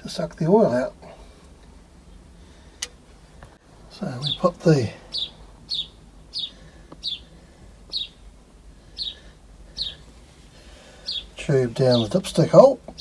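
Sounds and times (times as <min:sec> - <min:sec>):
small bird chirping: 0:04.0 - 0:10.1, 0:10.9 - 0:13.0.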